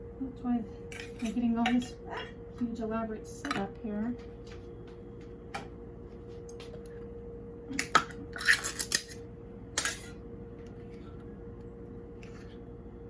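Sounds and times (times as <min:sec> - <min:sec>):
steady hum: 0:00.0 - 0:13.0
dishes and utensils clattering: 0:00.9 - 0:02.3, 0:07.8 - 0:09.2, 0:09.8 - 0:10.1.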